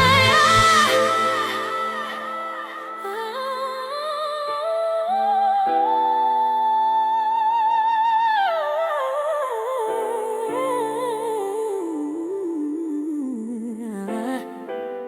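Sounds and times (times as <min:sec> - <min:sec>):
sustained accompanying chords: 0:00.0 - 0:03.4
hummed vocal with vibrato: 0:00.0 - 0:07.0.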